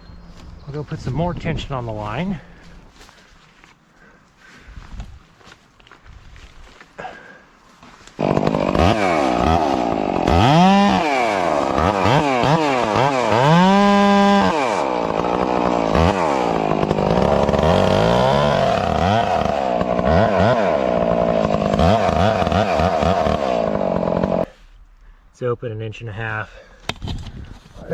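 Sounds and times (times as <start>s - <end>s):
chainsaw revving: 8.2s - 24.5s.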